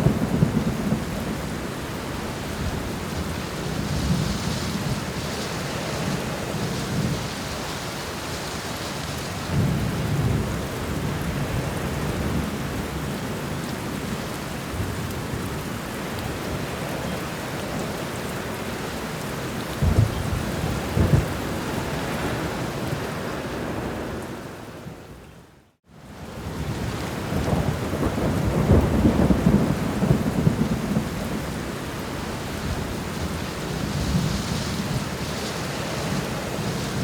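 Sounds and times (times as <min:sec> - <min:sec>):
heavy rain: 0:00.0 - 0:37.0
rolling thunder: 0:19.7 - 0:22.9, 0:26.7 - 0:31.6.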